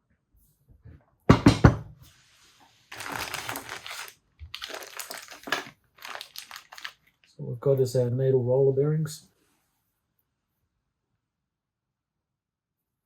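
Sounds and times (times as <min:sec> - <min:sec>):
plastic packaging crinkling: 0:02.9 - 0:07.3.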